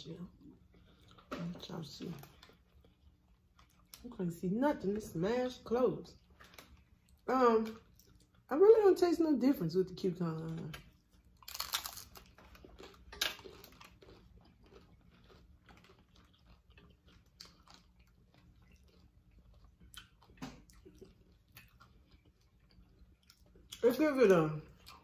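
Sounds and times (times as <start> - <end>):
chewing with crackles: 0.3 - 4.2, 6.1 - 8.5, 10.3 - 25.0
crunching taco shell bites: 10.9 - 23.8.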